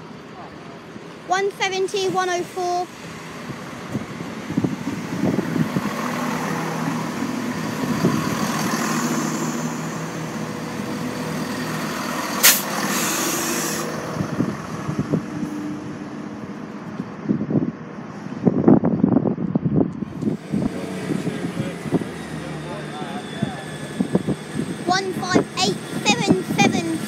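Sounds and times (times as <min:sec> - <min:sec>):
diesel train engines running: 0:00.0 - 0:27.0
sharp hiss: 0:12.4 - 0:14.0.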